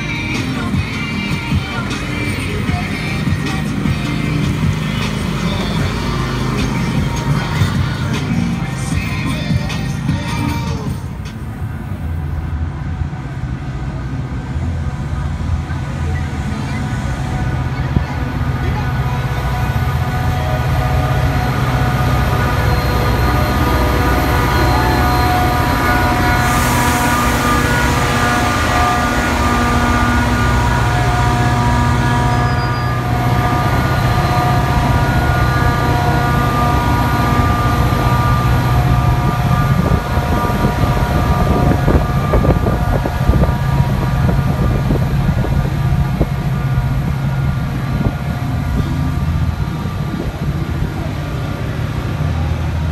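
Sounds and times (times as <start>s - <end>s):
diesel locomotive engine droning: 0.0s - 52.9s
train horn blasts: 15.0s - 51.3s.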